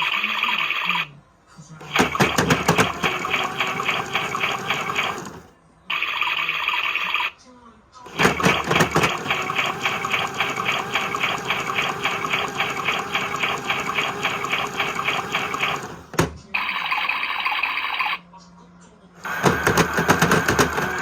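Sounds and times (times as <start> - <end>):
washing machine whirring: 0.0 - 1.1, 1.8 - 7.3, 8.0 - 18.2, 19.1 - 21.0
washing machine click: 1.8 - 5.5, 8.1 - 16.5, 19.2 - 21.0.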